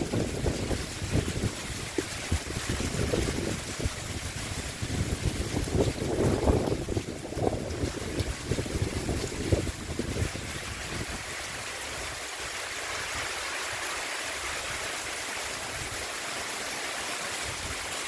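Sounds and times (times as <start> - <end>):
wind buffeting microphone: 0.0 - 12.2
heavy rain pouring: 0.0 - 18.0.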